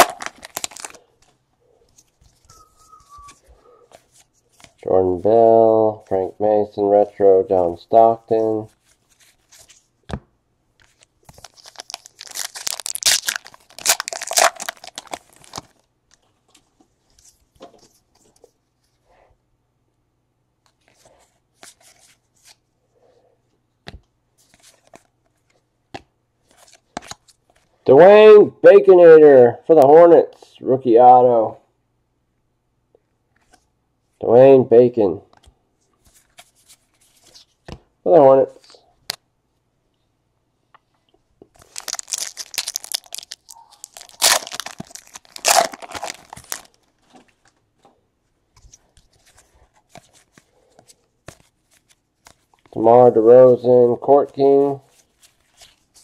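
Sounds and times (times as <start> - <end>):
wrapper ripping: 0.0 - 1.0, 11.3 - 15.8, 41.6 - 46.9
plastic wrapper crinkling: 0.0 - 1.1, 10.9 - 16.2, 41.6 - 47.5
trading cards being flipped: 0.0 - 4.8, 10.8 - 16.6, 35.4 - 37.8, 41.6 - 47.5, 48.5 - 52.7.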